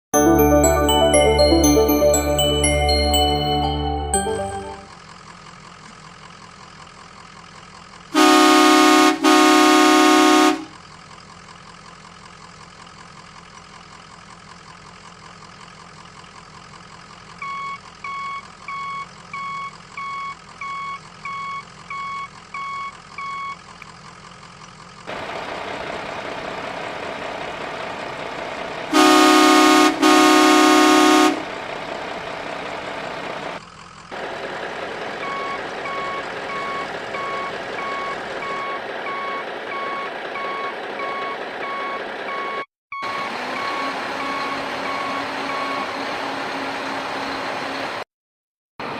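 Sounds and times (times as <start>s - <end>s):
toy horn toots: 8.2s - 10.7s, 28.9s - 31.4s
electronic reversing beeps: 35.2s - 46.0s.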